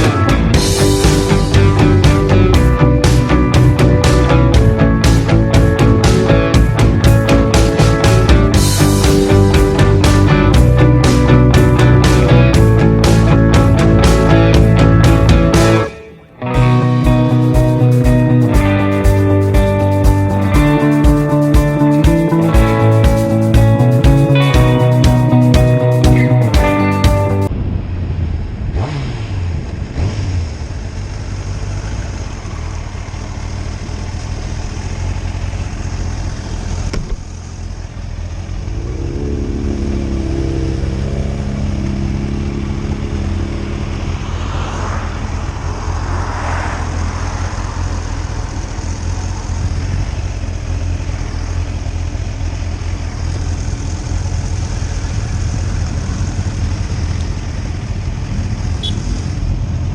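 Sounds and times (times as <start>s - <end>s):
motorcycle engine running: 0.0s - 59.9s
rushes of noise: 38.7s - 50.2s
wind rush: 43.2s - 49.6s.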